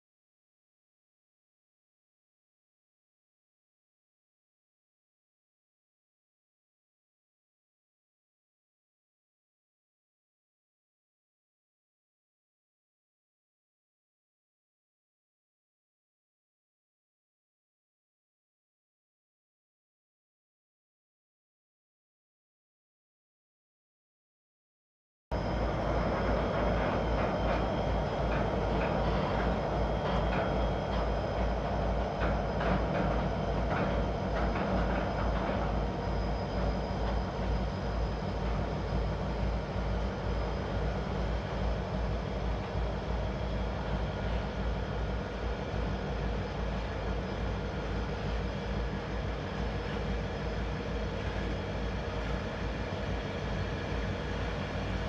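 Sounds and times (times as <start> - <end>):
diesel locomotive engine drone: 25.3 - 55.0.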